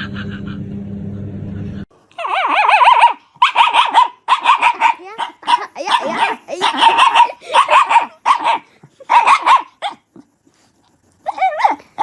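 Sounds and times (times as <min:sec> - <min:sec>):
low hum: 0:00.0 - 0:02.2
dog yelping and howling: 0:02.1 - 0:10.1, 0:11.2 - 0:12.0.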